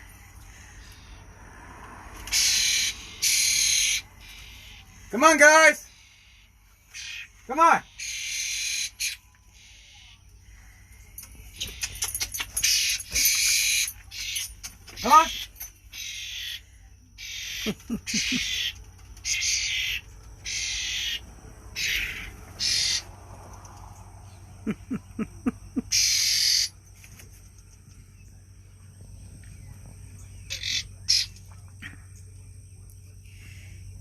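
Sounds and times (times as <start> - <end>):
young birds begging calls: 0.0 - 1.4, 2.2 - 23.2, 24.5 - 26.8, 30.3 - 31.6.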